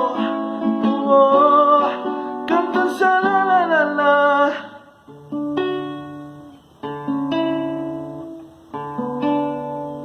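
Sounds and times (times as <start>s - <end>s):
person singing: 0.0s - 5.2s
acoustic guitar strumming chords: 0.0s - 10.0s.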